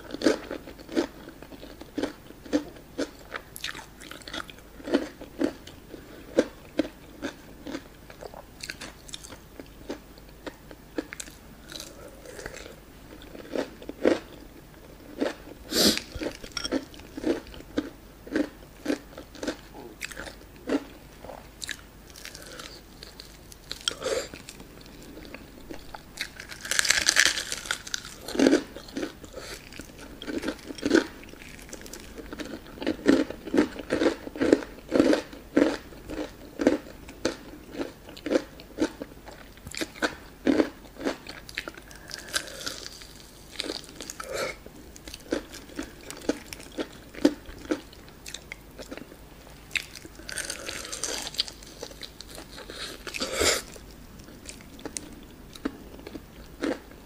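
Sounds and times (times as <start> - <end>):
loud crunchy bite: 25.8 - 29.7.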